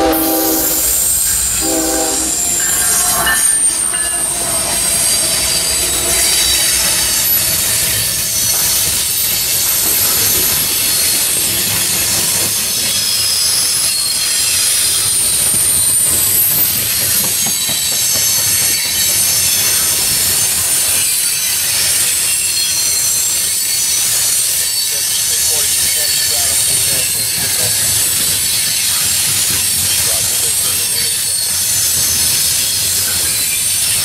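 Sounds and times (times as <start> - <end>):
high-pitched wheel squeal: 0.0 - 9.1
wheels rumbling on rail: 0.0 - 34.0.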